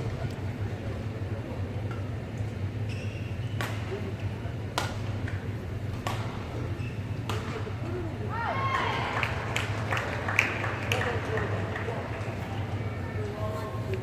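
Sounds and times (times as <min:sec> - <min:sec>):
shoe squeaks on court floor: 0:02.8 - 0:03.6
racket striking shuttlecock: 0:04.8 - 0:05.1, 0:05.9 - 0:06.4.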